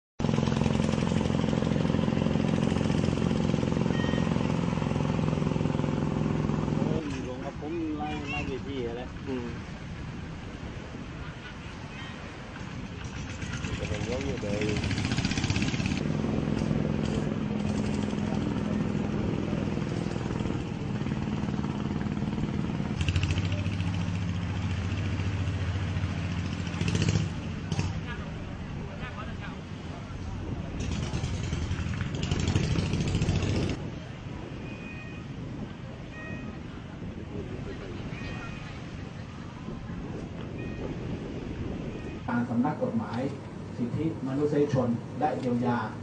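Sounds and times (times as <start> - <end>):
engine throbbing: 0.2 - 7.7, 13.0 - 28.3, 30.4 - 33.9
short faint beep: 3.9 - 4.4.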